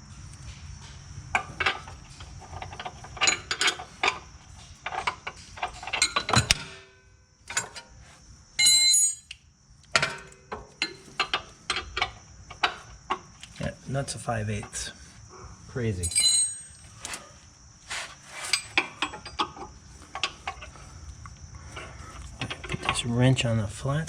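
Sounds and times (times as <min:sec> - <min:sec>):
wrenches clinking and scraping: 0:01.4 - 0:06.9, 0:07.5 - 0:08.0, 0:08.6 - 0:14.9, 0:16.0 - 0:20.9, 0:21.7 - 0:23.3
tool metallic clang: 0:16.0 - 0:17.2.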